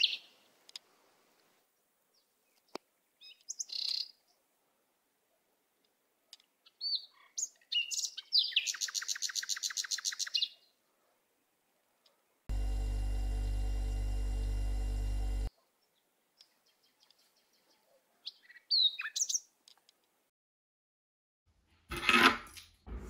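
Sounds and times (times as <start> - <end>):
songbirds chirping: 0.0 - 12.5, 15.5 - 20.2.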